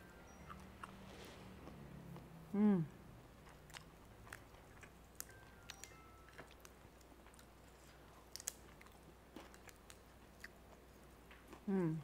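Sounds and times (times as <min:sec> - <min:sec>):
faint chewing of rice: 0:00.3 - 0:02.3, 0:03.2 - 0:12.0.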